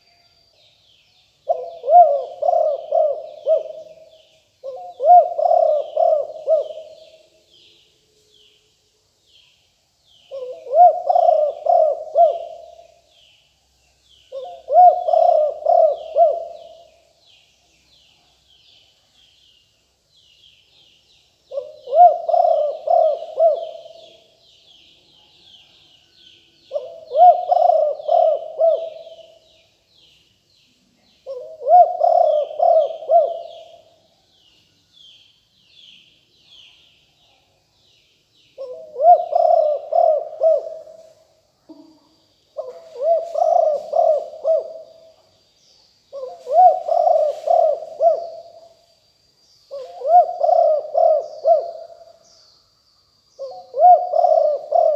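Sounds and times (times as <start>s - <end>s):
small birds chirping: 0.0s - 54.9s
dove cooing: 1.4s - 7.3s, 10.3s - 13.0s, 14.3s - 17.0s, 21.5s - 24.4s, 26.7s - 29.4s, 31.2s - 34.0s, 38.6s - 42.0s, 42.6s - 45.2s, 46.1s - 48.8s, 49.7s - 52.2s, 53.4s - 54.9s.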